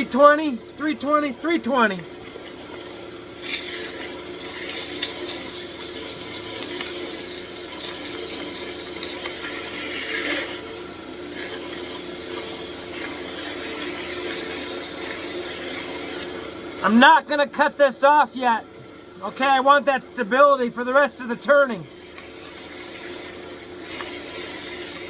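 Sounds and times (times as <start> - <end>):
wood lathe hum: 0.0 - 25.0
sandpaper sanding hiss: 20.5 - 25.0.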